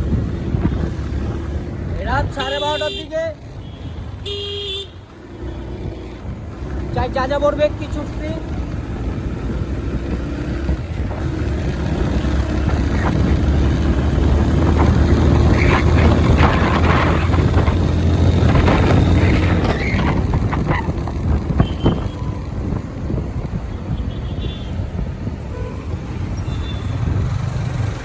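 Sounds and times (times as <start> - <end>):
wind rushing over microphone: 0.0 - 2.5, 5.4 - 28.0
motorcycle engine running: 5.4 - 24.8.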